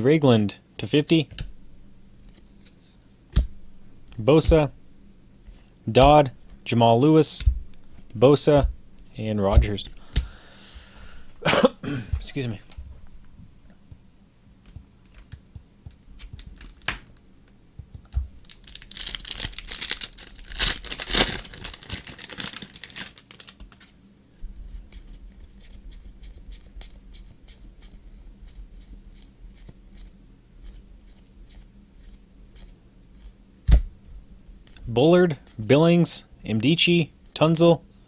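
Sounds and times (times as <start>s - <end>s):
card pack wrappers tearing: 18.4s - 23.9s.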